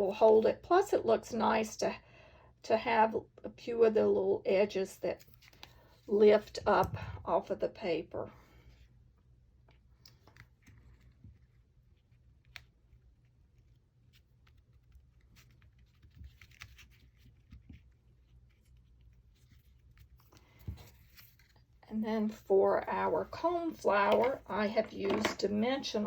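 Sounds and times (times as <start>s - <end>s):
paper rustling: 13.6s - 21.8s.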